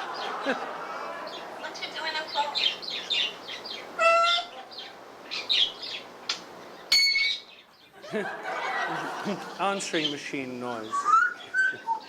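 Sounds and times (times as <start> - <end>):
parrot whistling and chirping: 2.6 - 4.5, 6.9 - 7.6, 10.8 - 12.0
parrot mumbling talk-like sounds: 4.0 - 4.6.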